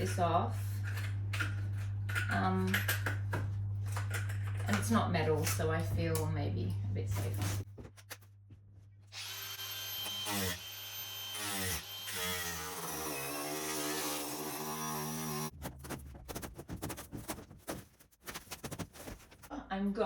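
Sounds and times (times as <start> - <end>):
angle grinder cutting: 9.1 - 15.5.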